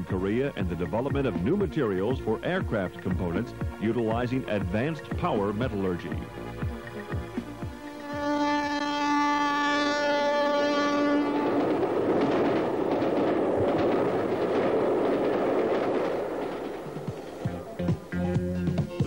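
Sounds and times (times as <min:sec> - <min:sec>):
train running past: 0:00.0 - 0:19.0
train horn: 0:07.6 - 0:12.1.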